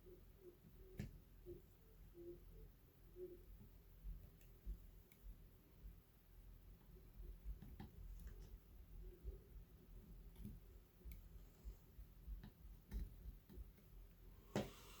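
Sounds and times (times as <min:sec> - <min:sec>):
faint light clicks and taps: 0:07.4 - 0:08.6.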